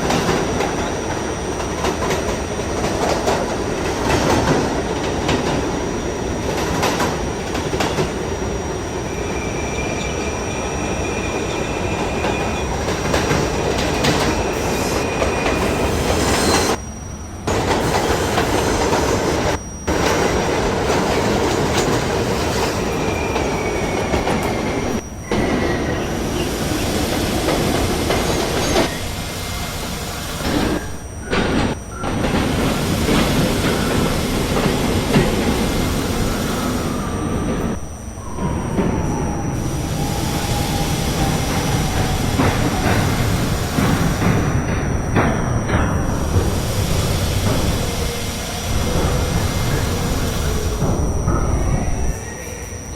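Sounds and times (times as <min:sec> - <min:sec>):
subway car rumble: 0:00.0 - 0:52.9
high wheel squeal: 0:07.8 - 0:52.9
wheels clickety-clack: 0:40.8 - 0:52.1.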